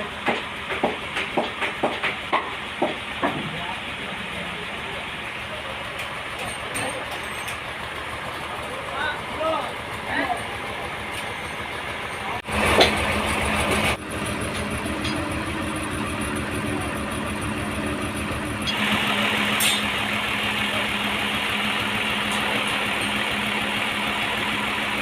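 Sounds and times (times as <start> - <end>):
sawmill engine humming: 0.0 - 25.0.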